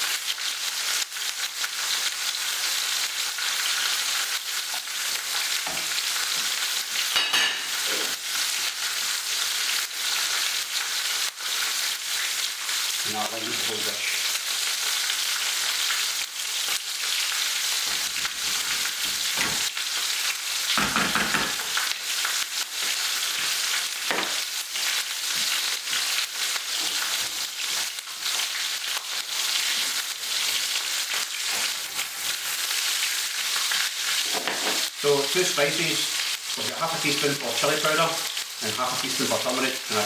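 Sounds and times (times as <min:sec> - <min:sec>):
sauce sizzling in a pan: 0:00.0 - 0:40.0.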